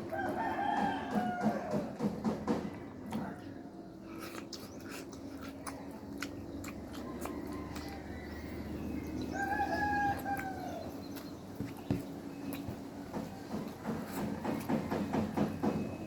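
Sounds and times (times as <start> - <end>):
rooster crowing: 0.0 - 1.9, 7.0 - 10.9.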